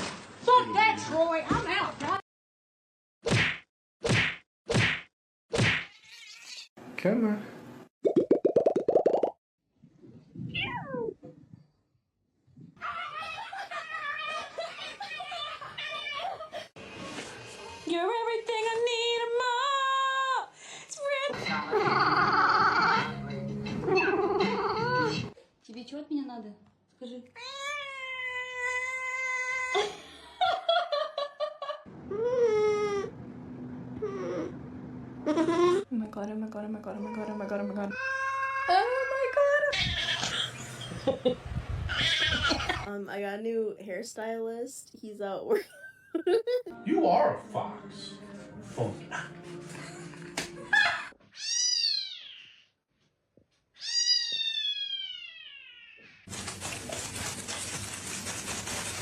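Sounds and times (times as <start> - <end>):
cat yowling: 5.8 - 6.7, 37.9 - 39.2, 53.8 - 56.3.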